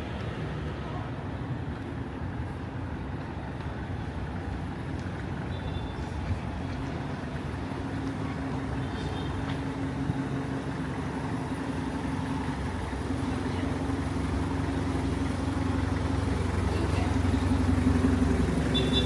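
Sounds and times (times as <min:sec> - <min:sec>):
street traffic: 0:00.0 - 0:19.0
vehicle engine running: 0:09.6 - 0:19.0.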